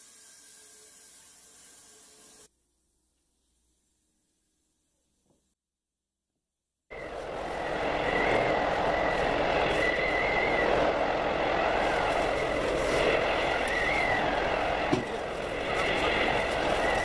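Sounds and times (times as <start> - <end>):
wavering faint whine: 6.9 - 17.0.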